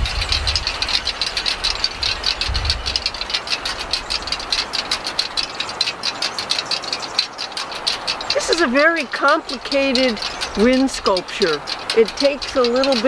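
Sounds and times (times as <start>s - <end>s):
wind rumble on microphone: 0.0s - 5.4s
wind sculpture clicking and clattering: 0.0s - 13.0s.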